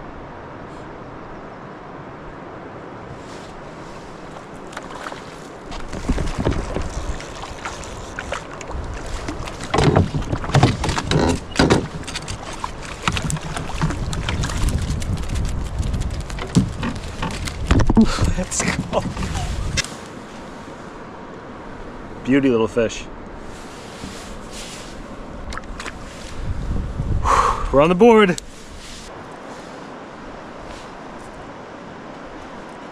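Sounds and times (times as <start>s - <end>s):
water rushing: 0.0s - 32.9s
canoe knocks and clatters: 4.4s - 19.8s.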